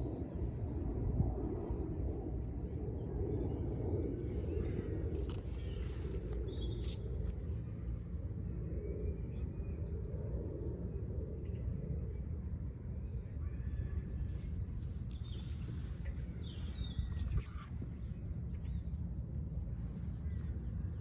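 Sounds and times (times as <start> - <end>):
birds chirping: 0.0 - 21.0
low background rumble: 0.0 - 21.0.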